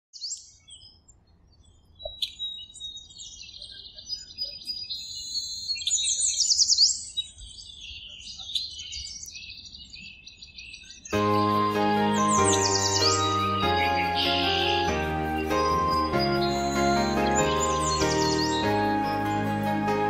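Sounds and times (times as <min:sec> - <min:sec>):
skylark singing: 0:11.1 - 0:20.0.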